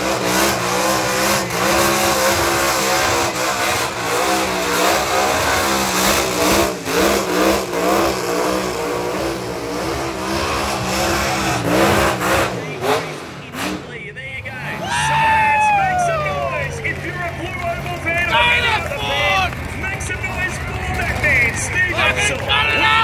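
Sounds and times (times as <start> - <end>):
engine revving hard: 0.0 - 15.1.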